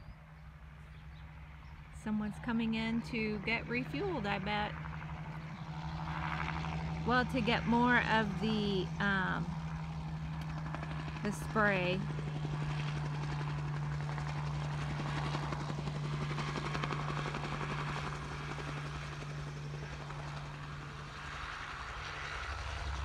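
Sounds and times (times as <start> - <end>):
distant helicopter rotor drone: 0.0 - 23.0.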